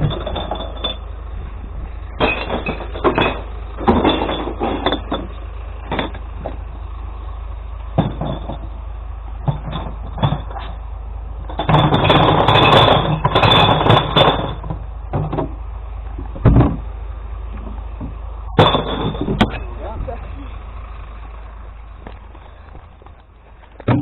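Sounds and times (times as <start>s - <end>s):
loud glass clattering: 0.0s - 1.1s, 2.2s - 6.6s, 8.0s - 8.8s, 9.5s - 10.8s, 11.5s - 15.6s, 18.6s - 19.8s
truck engine humming: 0.0s - 24.0s.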